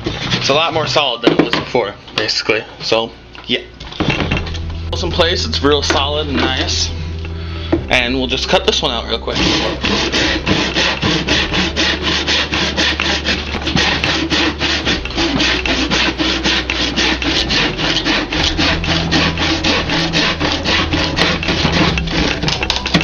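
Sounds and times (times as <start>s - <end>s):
hand saw cutting wood: 9.3s - 23.0s.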